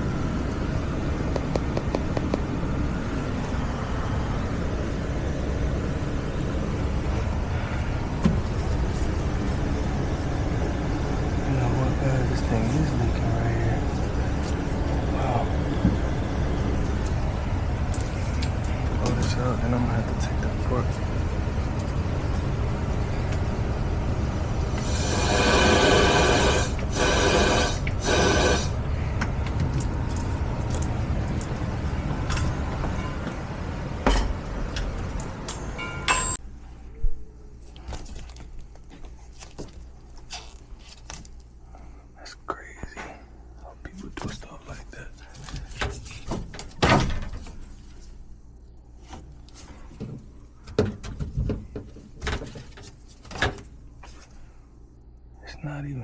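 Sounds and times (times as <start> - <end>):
low steady hum: 0.0 - 56.0
gas hissing from nozzle: 24.3 - 28.8
knocks and scrapes of panels: 49.1 - 53.7.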